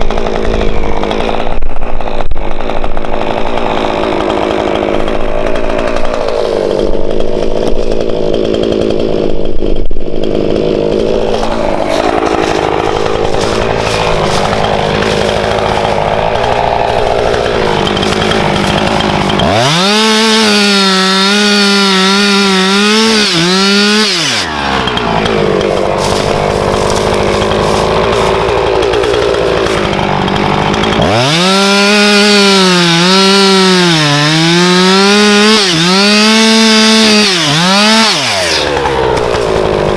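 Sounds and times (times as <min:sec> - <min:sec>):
chainsaw cutting logs: 0:00.0 - 0:39.9.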